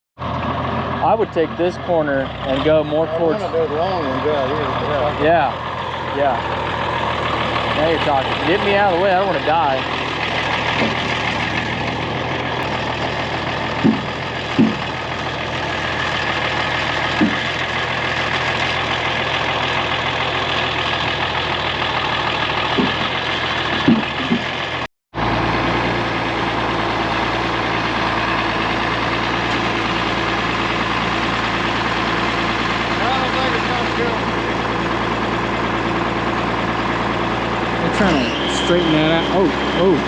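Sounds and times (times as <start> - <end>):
engine idling: 0.2 - 40.0
short engine knocks: 7.5 - 15.2, 15.9 - 17.9, 22.4 - 24.9.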